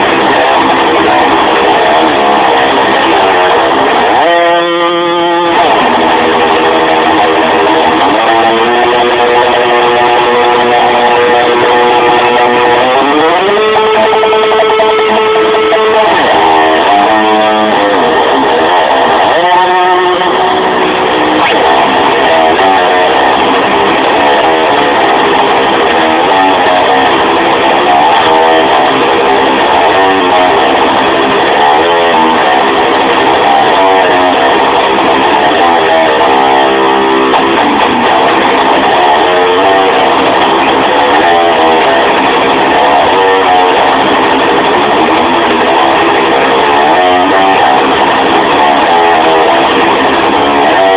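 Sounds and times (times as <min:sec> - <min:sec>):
electric guitar pitch dive-bombs: 0:00.0 - 0:50.9.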